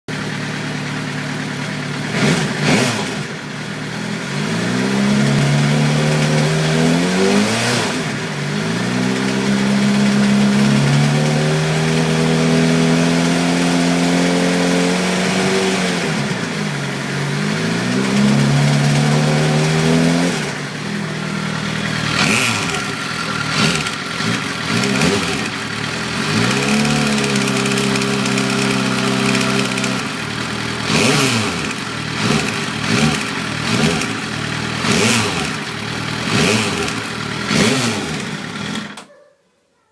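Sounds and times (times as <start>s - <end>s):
motorcycle engine revving: 0.1s - 39.1s.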